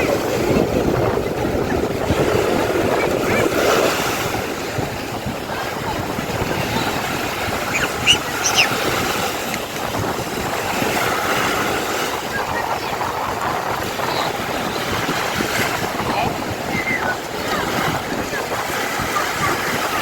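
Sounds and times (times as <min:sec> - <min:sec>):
boat engine and water rushing: 0:00.0 - 0:20.0
wind buffeting microphone: 0:00.0 - 0:20.0
short high squeaks: 0:07.7 - 0:08.8.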